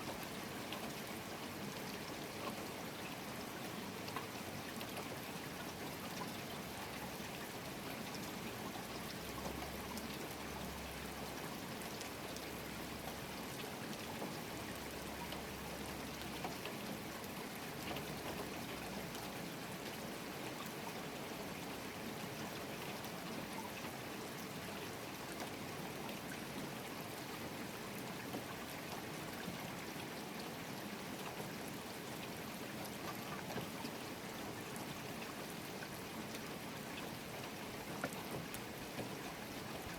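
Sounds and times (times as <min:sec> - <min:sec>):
rain drops pattering: 0:00.0 - 0:39.9.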